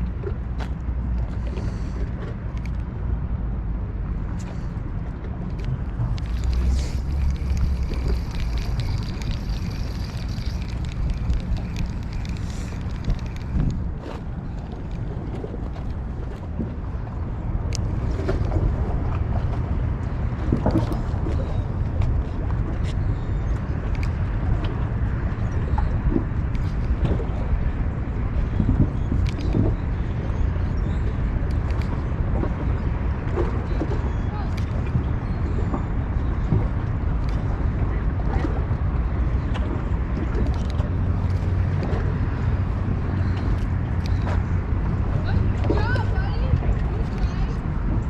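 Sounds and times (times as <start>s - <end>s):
wind rumbling on microphone: 0.0s - 48.0s
small clicks: 2.6s - 2.9s, 5.5s - 15.0s, 29.1s - 29.6s, 31.5s - 31.9s.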